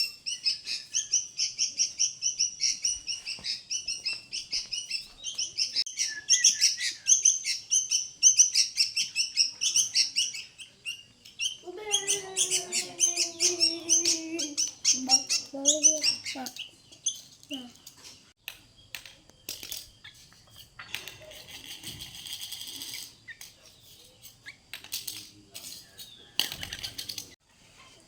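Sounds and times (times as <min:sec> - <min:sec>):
small bird chirping: 0:00.0 - 0:28.0
long voice-like call: 0:11.6 - 0:15.1.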